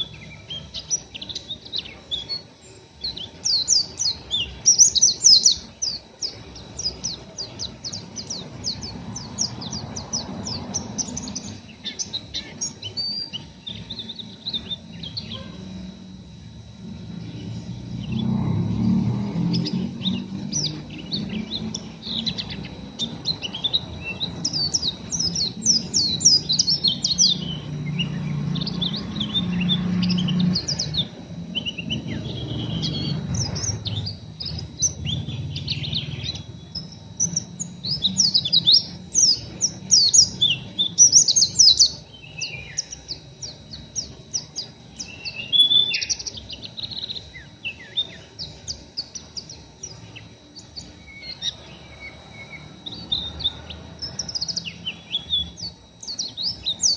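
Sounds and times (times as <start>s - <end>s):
bird twittering sharp chirps: 0.0s - 56.9s.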